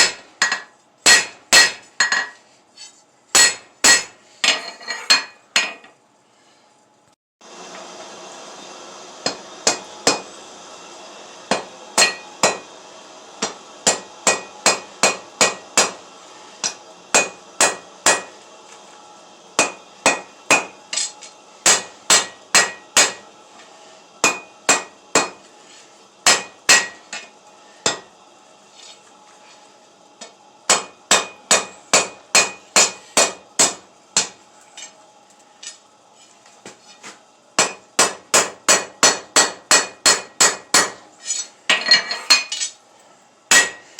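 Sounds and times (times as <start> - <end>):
hammer ringing on anvil: 43.5 - 43.9.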